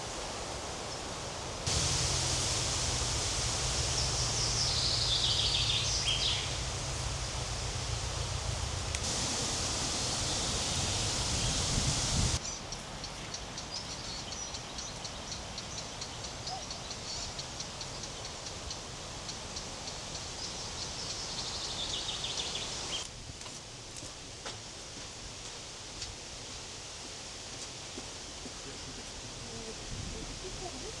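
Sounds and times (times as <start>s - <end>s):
steady rushing noise: 0.0s - 12.4s
small birds chirping: 0.9s - 23.0s.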